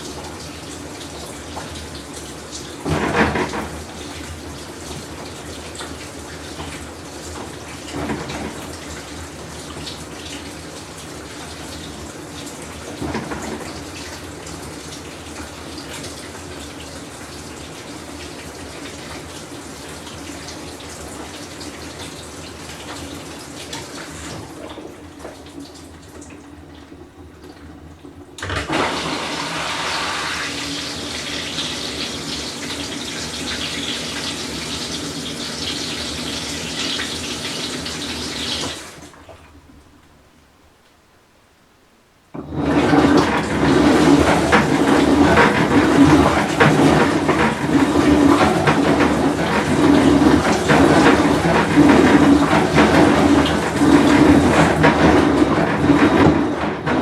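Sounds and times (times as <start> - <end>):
water flowing in washer: 0.0 - 40.8, 42.3 - 57.0
washing machine humming: 0.0 - 57.0
loud rush of water: 28.5 - 33.4.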